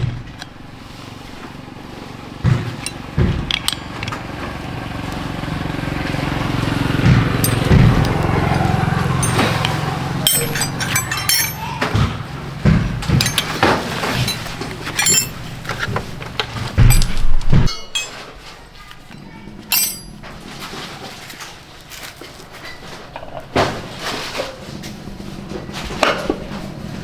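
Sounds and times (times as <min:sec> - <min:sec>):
motorcycle engine idling: 0:01.5 - 0:17.0
metal tools clinking: 0:02.7 - 0:04.2, 0:07.4 - 0:12.2, 0:13.0 - 0:18.6, 0:19.7 - 0:20.3.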